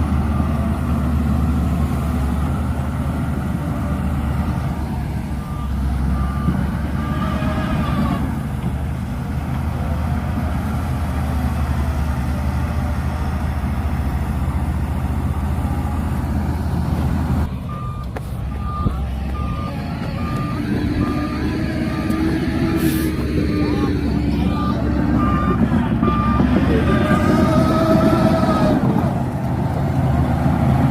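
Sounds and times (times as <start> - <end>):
bulldozer diesel engine running: 0.0 - 30.9
reversing alarm beeping: 5.4 - 8.1, 17.6 - 27.6.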